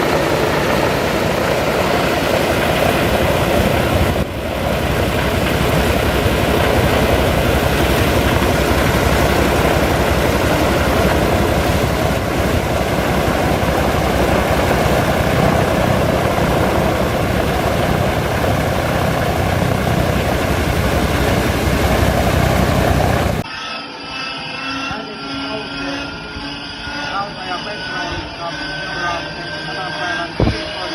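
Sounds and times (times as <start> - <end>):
radial aircraft engine running: 0.0 - 23.5.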